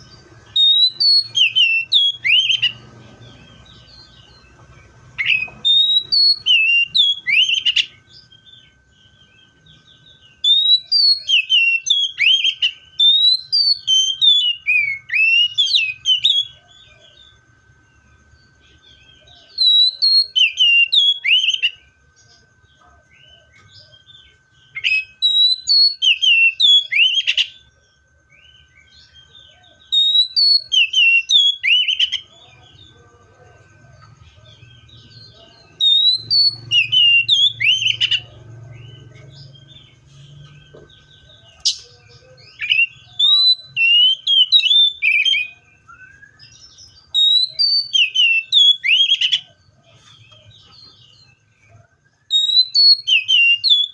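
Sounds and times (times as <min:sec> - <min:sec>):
bird singing whistled notes: 0:00.0 - 0:53.9
faint steady high tone: 0:00.0 - 0:53.9.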